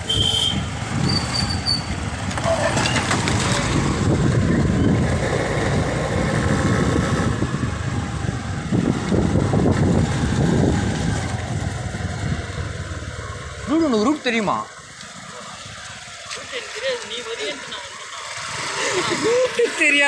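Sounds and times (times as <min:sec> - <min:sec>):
wind rumble on microphone: 0:00.0 - 0:13.2
vehicle and road noise: 0:00.0 - 0:20.0.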